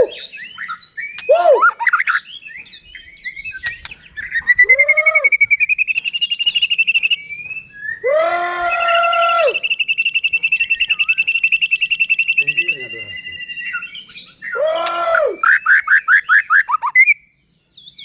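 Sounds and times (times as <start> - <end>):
bird singing whistled phrases: 0.0 - 18.0
fast rattling bird trill: 5.6 - 7.4, 9.6 - 14.4.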